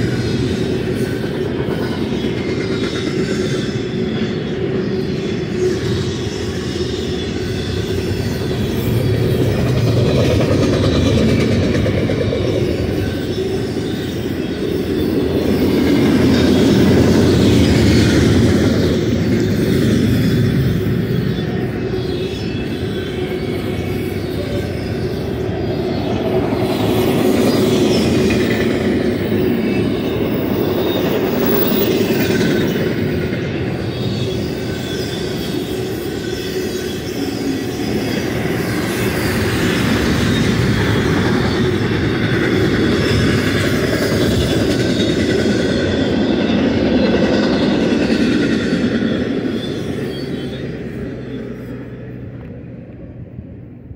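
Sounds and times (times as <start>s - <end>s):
high-pitched wheel squeal: 0.0s - 52.3s
freight train wheels rumbling: 0.0s - 53.9s.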